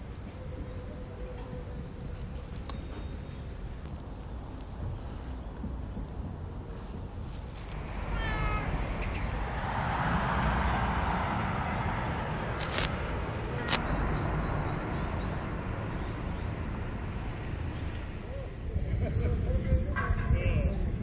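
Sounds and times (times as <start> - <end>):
low outdoor rumble: 0.0 - 13.8
cat meowing: 8.0 - 8.8
sharp clicks: 12.5 - 13.8.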